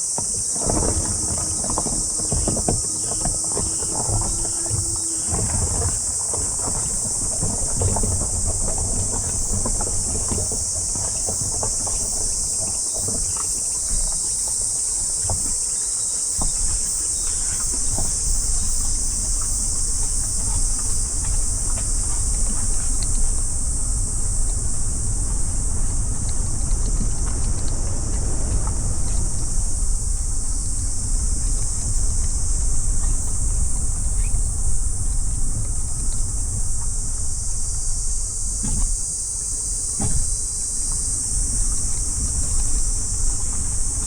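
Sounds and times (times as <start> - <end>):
car road and engine rumble: 0.0 - 13.1, 17.6 - 44.0
insects chorus: 0.0 - 44.0.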